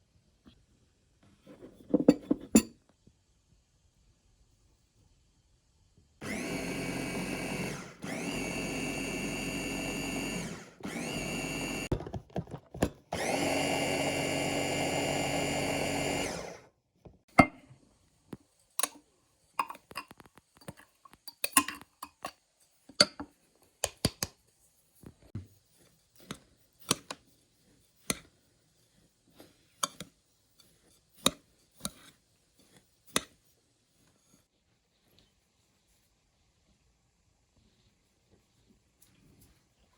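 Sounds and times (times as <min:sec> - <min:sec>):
blender motor spinning: 0:06.2 - 0:11.9, 0:13.1 - 0:16.7.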